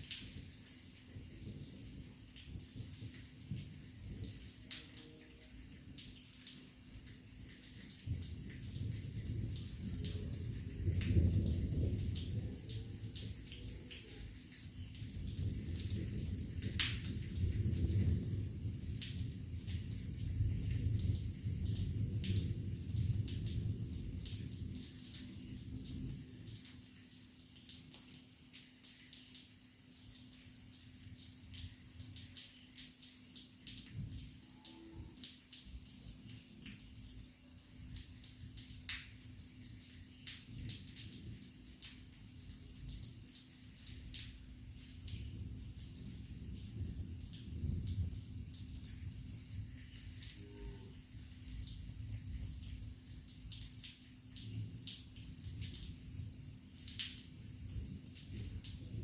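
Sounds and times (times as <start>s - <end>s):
drops pattering and dripping: 0.0s - 59.0s
heavy rain falling: 0.0s - 59.0s
thunder rumble: 8.9s - 13.4s.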